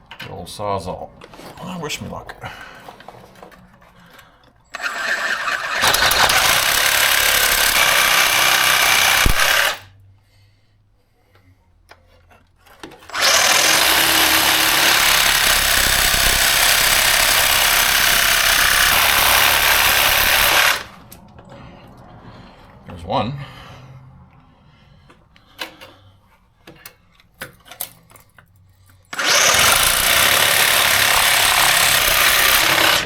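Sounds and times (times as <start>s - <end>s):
reciprocating saw cutting steel: 4.7s - 9.9s, 13.1s - 21.0s, 29.2s - 33.0s.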